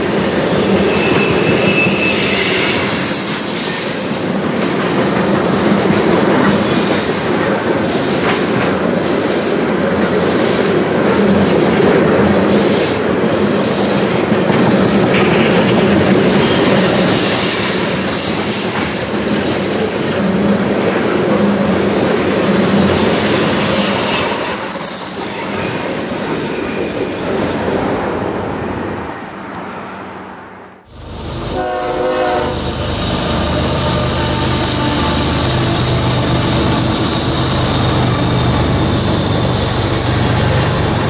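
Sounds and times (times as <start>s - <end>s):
train wheels clickety-clack: 0.0s - 27.6s
train rumble: 0.0s - 29.8s, 30.8s - 41.0s
high wheel squeal: 0.4s - 4.0s, 16.0s - 19.5s, 21.7s - 27.8s, 31.5s - 41.0s
train horn tone: 31.3s - 37.0s.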